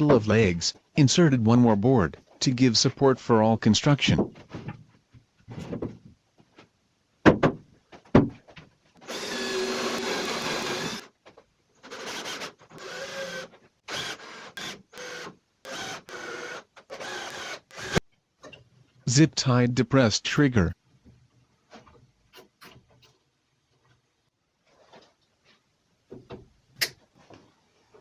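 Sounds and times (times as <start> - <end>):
drill driver motor: 9.0 - 11.1, 11.9 - 18.0.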